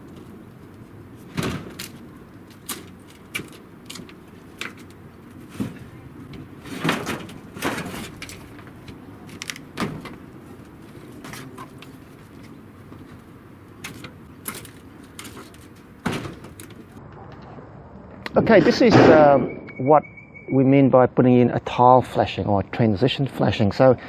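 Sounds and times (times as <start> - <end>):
low hum: 17.0 - 20.7.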